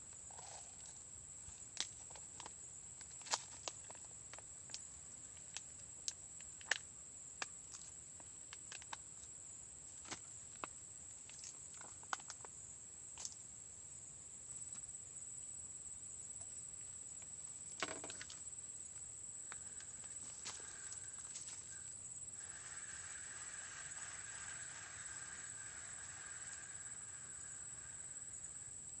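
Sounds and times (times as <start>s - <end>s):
small clicks and rustles: 1.8s - 6.8s, 10.0s - 12.6s
high-pitched insect drone: 19.4s - 29.0s.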